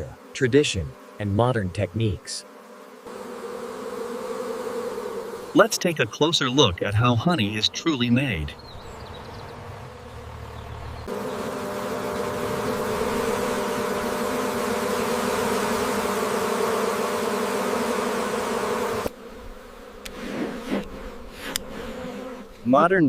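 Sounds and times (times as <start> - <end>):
bees buzzing: 0.0 - 23.0.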